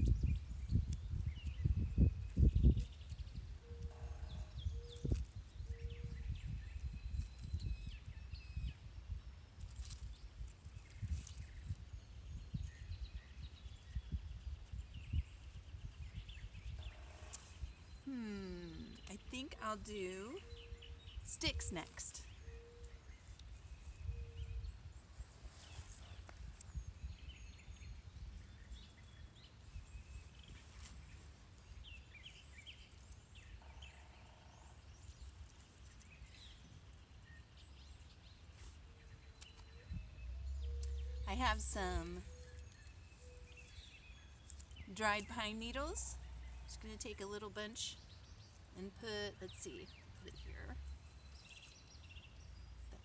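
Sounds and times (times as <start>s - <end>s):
wind buffeting microphone: 0.0s - 9.3s, 10.9s - 17.0s
birds chirping: 11.0s - 53.0s.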